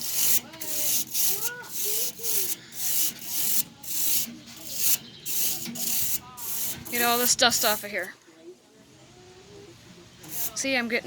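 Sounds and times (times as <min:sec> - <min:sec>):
brush scrubbing metal fins: 0:00.0 - 0:08.1, 0:10.3 - 0:10.6.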